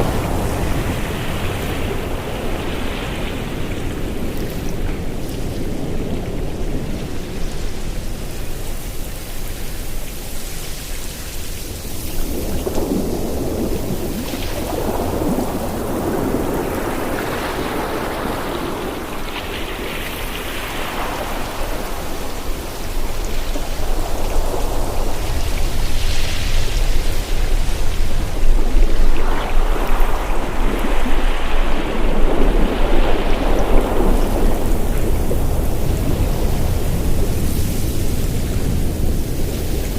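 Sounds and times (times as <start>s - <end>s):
ocean waves breaking: 0.0s - 39.9s
water rushing: 0.0s - 39.9s.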